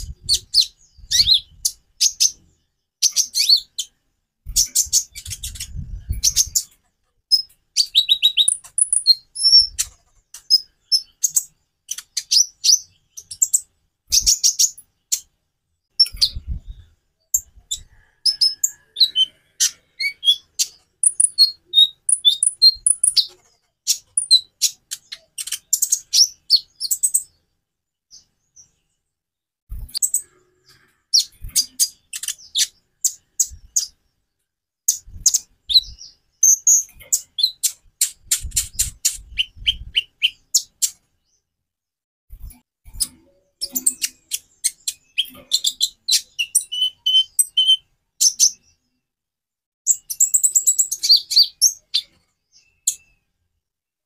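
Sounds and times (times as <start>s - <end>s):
sunbird singing high chirps: 17.4s - 23.3s, 43.7s - 48.7s.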